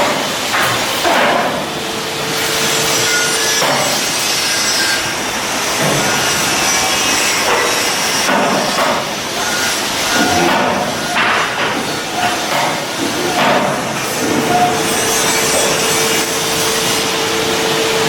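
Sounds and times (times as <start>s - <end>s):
scattered metal knocks: 5.7s - 6.6s, 7.4s - 15.8s.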